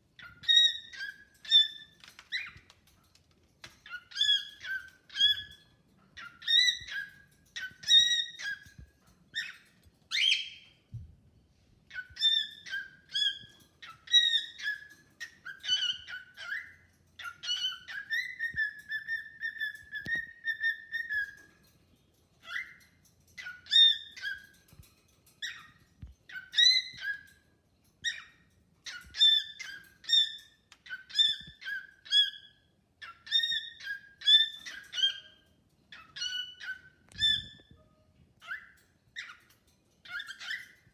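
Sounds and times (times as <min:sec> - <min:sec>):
cockatiel whistling: 0:06.2 - 0:08.8, 0:11.9 - 0:21.4, 0:26.3 - 0:27.3, 0:28.9 - 0:39.4.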